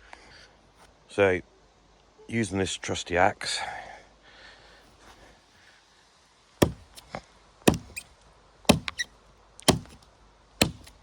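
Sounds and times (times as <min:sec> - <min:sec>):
axe chopping branches: 0:06.6 - 0:08.1, 0:08.7 - 0:10.0, 0:10.6 - 0:11.0.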